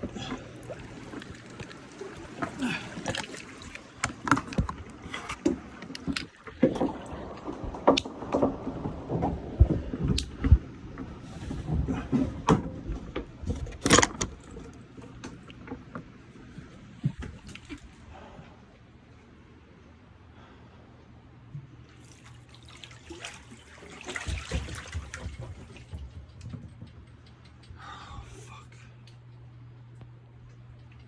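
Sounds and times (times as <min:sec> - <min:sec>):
knocks and clunks: 0:04.0 - 0:17.9.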